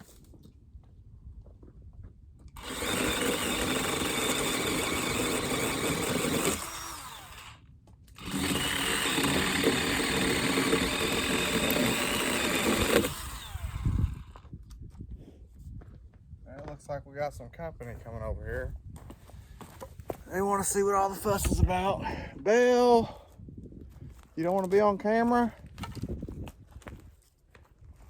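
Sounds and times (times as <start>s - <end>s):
electric saw cutting wood: 2.6s - 14.4s.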